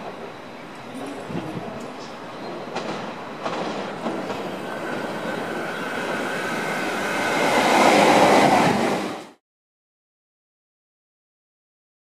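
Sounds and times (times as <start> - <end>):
train wheels rolling on rails: 0.0 - 9.4.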